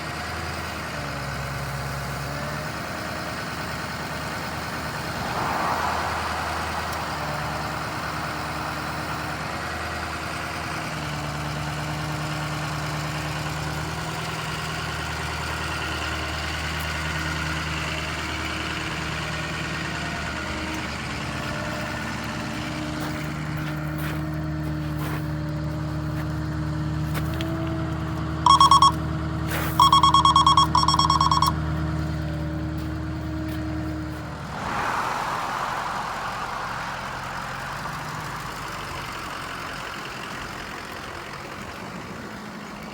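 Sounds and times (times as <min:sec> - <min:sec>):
diesel engine running: 0:00.0 - 0:42.9
loud electronic beeps: 0:28.5 - 0:29.0, 0:29.8 - 0:31.6.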